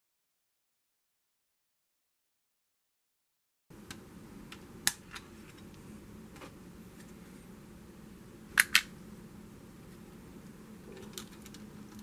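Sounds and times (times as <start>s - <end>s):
faint room hum: 3.7s - 12.0s.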